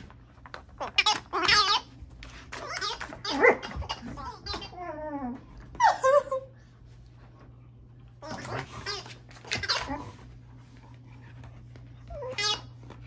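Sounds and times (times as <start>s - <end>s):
dog warbling and whining: 2.5s - 6.6s, 8.2s - 10.3s, 12.0s - 12.9s.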